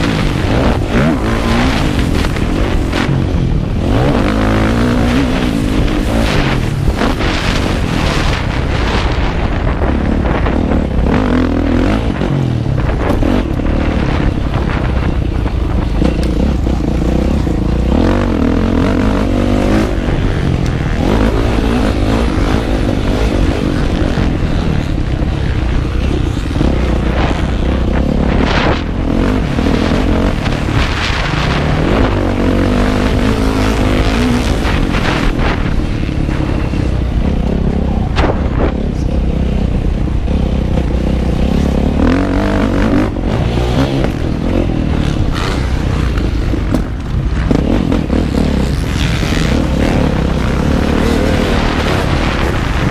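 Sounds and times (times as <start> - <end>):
motorcycle engine revving: 0.0 - 52.9
wind noise: 0.0 - 52.9.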